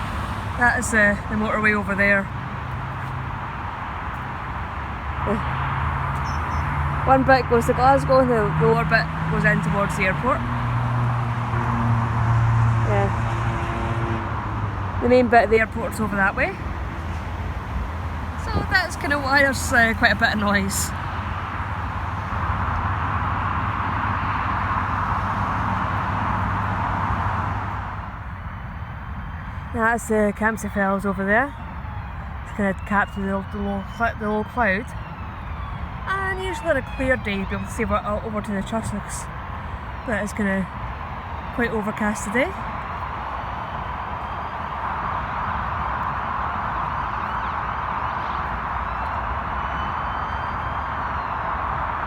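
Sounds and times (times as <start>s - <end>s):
tyres hissing on motorway: 0.0s - 28.2s
low traffic rumble: 0.0s - 52.0s.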